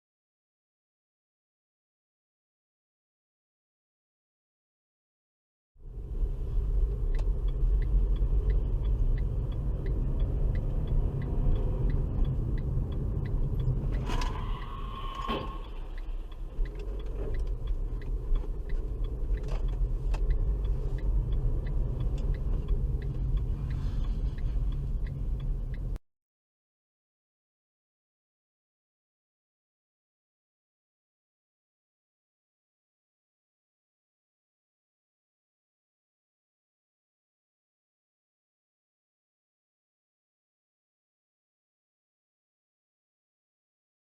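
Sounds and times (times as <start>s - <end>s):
road and engine rumble: 5.8s - 26.0s
faint regular ticking: 5.9s - 26.0s.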